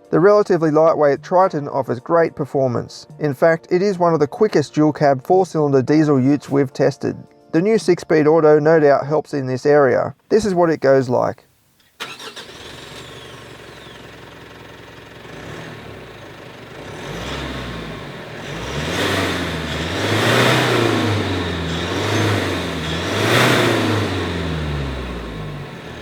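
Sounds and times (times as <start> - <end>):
diesel engine accelerating: 12.0 - 26.0.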